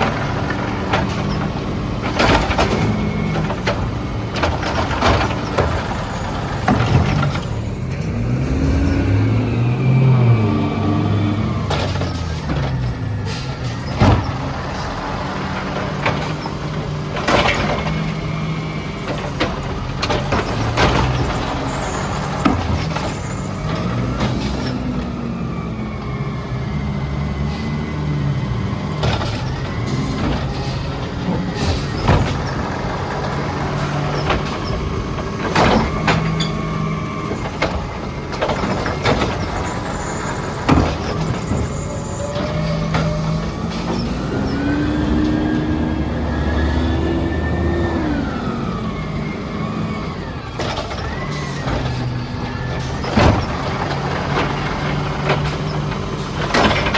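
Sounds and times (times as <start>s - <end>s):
diesel engine running: 0.0s - 56.9s
sharp knocks and bangs: 11.6s - 18.2s, 28.8s - 45.4s
air brake hisses: 30.5s - 31.0s, 31.6s - 31.9s.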